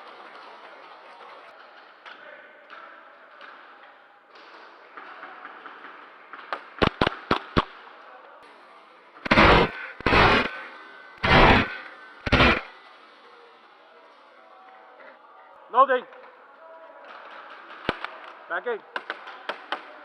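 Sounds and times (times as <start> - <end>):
indoor arena background: 0.0 - 20.0
airsoft gun shots: 6.8 - 7.8, 9.3 - 10.6, 11.2 - 12.7.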